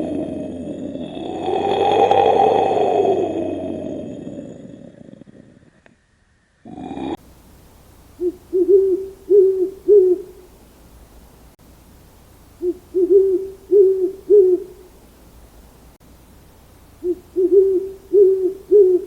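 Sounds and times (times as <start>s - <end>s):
owl hooting: 0.0s - 4.6s, 8.1s - 10.5s, 12.6s - 15.0s, 17.0s - 19.0s.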